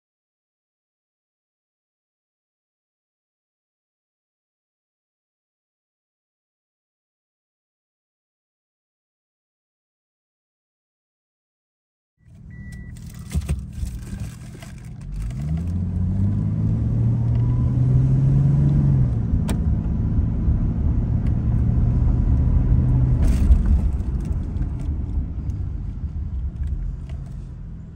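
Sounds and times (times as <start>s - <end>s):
car engine accelerating: 12.3s - 27.9s.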